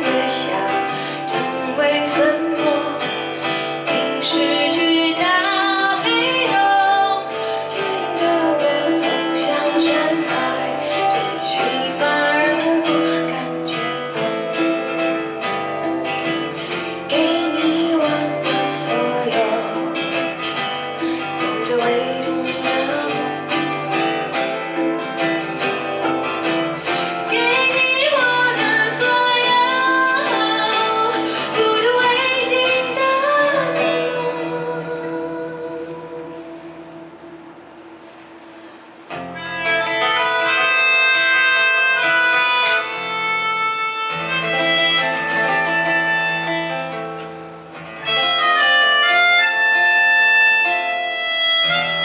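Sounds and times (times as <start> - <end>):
woman singing: 0.0 - 37.4
acoustic guitar: 0.0 - 52.0.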